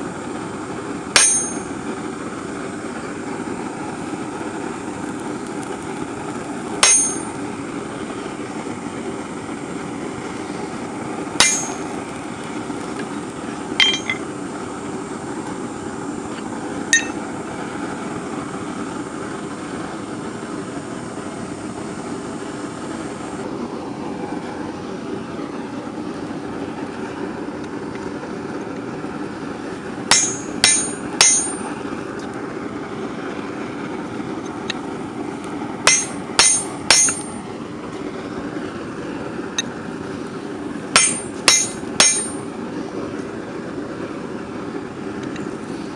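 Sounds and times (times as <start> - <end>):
hammer ringing on anvil: 1.2 - 1.7, 6.8 - 7.4, 11.4 - 11.9, 13.8 - 14.2, 17.0 - 17.2, 30.1 - 31.6, 35.9 - 37.4, 41.0 - 42.4.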